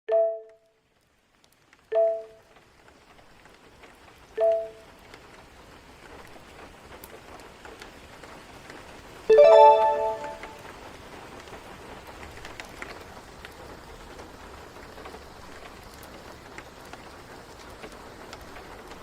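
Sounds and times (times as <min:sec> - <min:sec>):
gentle rain: 0:00.1 - 0:19.0
soft two-note chime: 0:04.4 - 0:04.8, 0:09.3 - 0:10.6.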